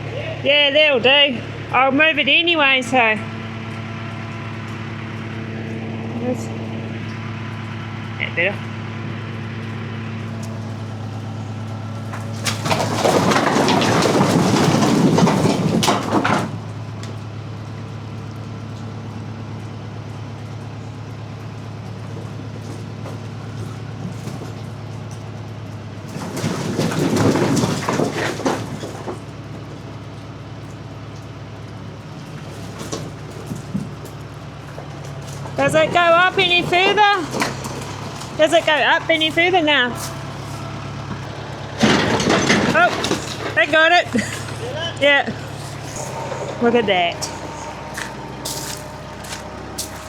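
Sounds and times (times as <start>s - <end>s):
tractor engine idling: 0.0s - 50.0s.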